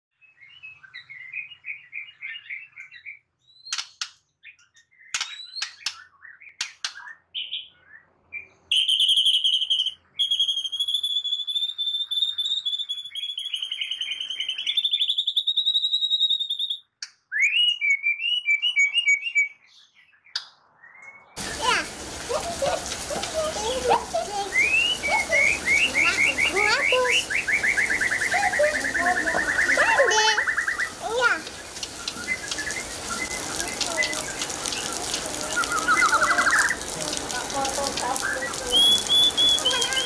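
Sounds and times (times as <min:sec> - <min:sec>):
songbird trilling and chirping: 0:00.2 - 0:40.0
rain pattering: 0:21.4 - 0:40.0.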